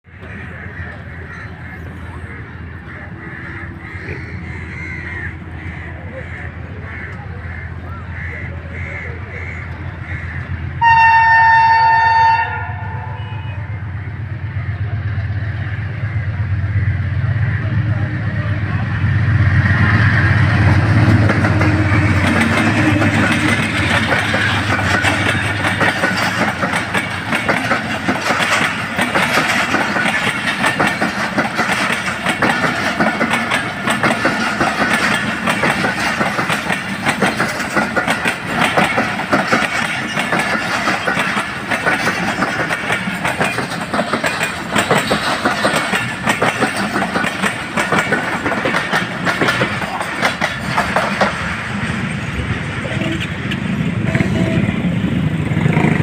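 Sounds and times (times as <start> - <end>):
diesel locomotive engine drone: 0.0 - 56.0
train wheels clacking on rails: 0.1 - 56.0.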